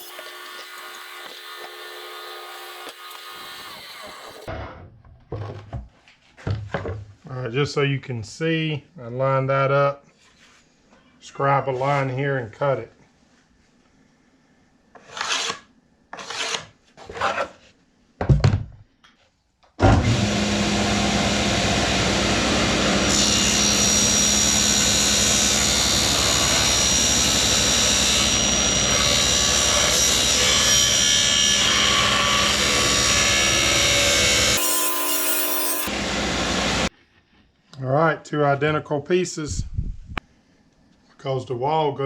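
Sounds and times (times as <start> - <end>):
power saw cutting wood: 0.0 - 4.5, 19.8 - 36.9.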